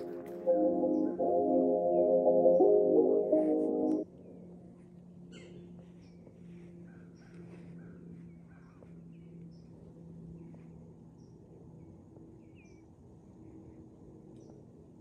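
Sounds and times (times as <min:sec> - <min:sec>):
low steady hum: 0:00.0 - 0:04.0.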